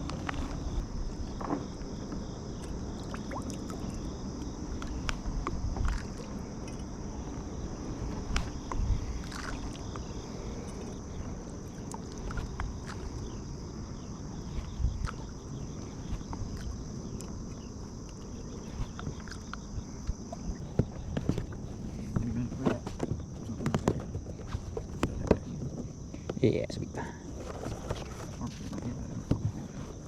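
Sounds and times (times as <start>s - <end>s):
crickets trilling: 0.0s - 30.0s
wind rumble on microphone: 0.0s - 30.0s
knocks and clicks of fishing gear: 18.8s - 25.9s.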